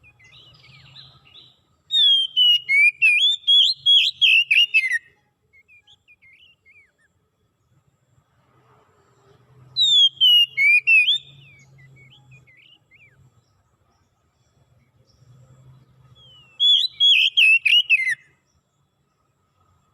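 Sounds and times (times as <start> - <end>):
songbird whistled phrases: 0.0 - 7.1, 9.8 - 13.2, 16.2 - 18.3
soft bird chirps: 0.0 - 19.9.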